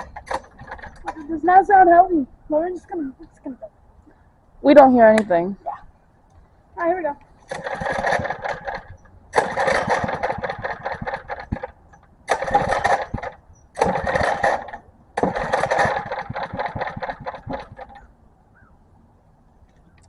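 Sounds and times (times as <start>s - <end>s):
pull-start engine chugging: 0.0s - 1.9s, 7.4s - 18.1s.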